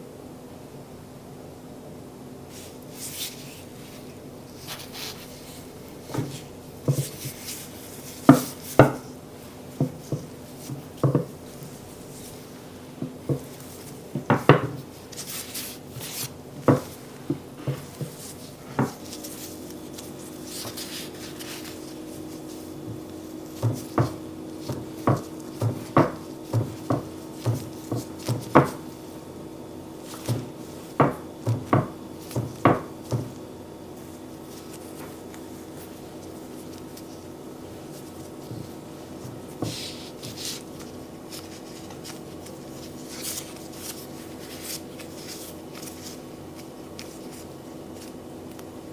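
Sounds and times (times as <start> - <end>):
faint steady hum: 0.0 - 48.9
baking utensils knocking: 22.9 - 28.9, 30.2 - 33.4.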